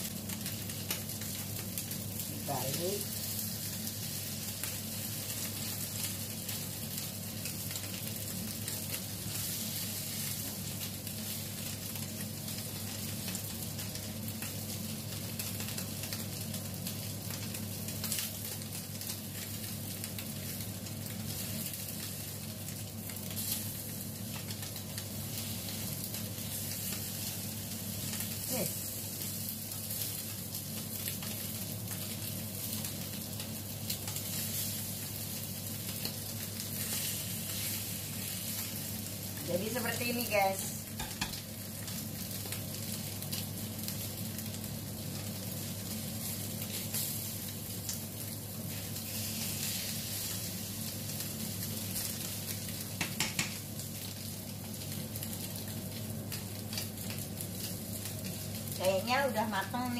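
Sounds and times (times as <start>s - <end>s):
food sizzling in a frying pan: 0.0s - 59.9s
spatula clicking against pan: 41.0s - 41.4s, 53.0s - 53.6s.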